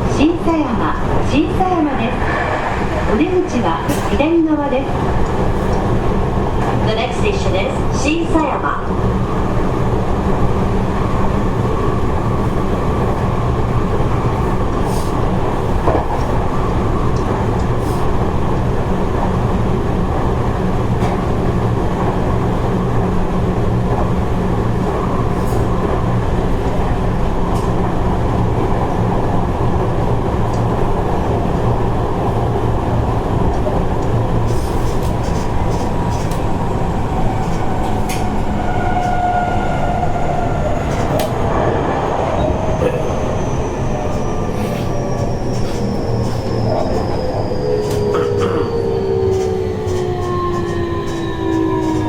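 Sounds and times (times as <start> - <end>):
train wheels rumbling on rails: 0.0 - 52.0.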